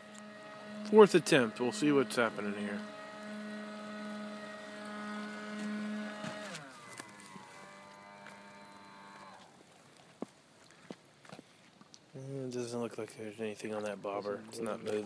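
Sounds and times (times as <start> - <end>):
rc boat electric motor whine: 0.0 - 9.6.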